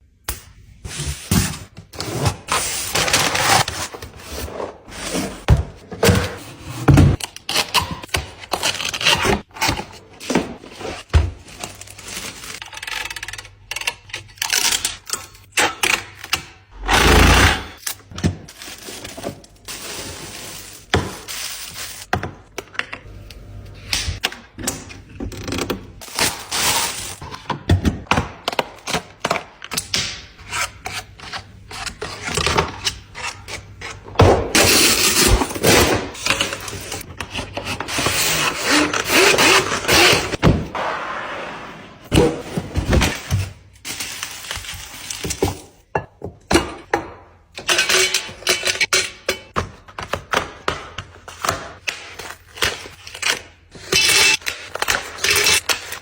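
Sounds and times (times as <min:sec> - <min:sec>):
packaging rustling and scraping: 0:00.9 - 0:13.4, 0:17.8 - 0:22.2, 0:25.3 - 0:27.4, 0:30.4 - 0:45.9, 0:51.2 - 0:56.0.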